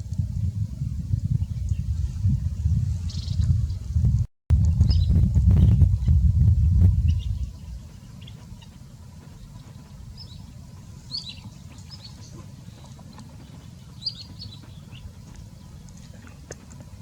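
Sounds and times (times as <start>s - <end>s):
steady low rumble: 0.0s - 17.0s
bird chirping: 6.9s - 16.1s.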